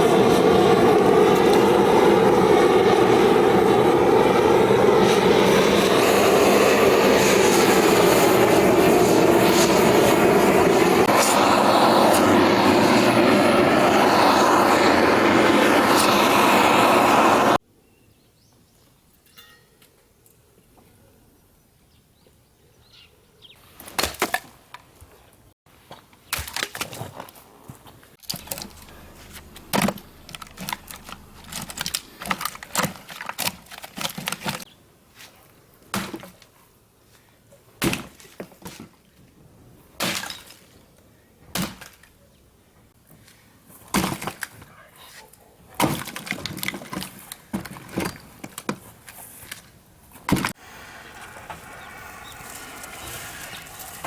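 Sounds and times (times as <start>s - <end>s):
firewood snapping and cracking: 28.2s - 34.6s, 45.8s - 49.6s.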